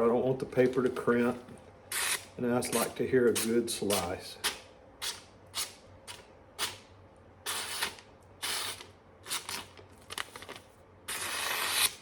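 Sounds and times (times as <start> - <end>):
knife slicing through paper: 11.1 - 12.0.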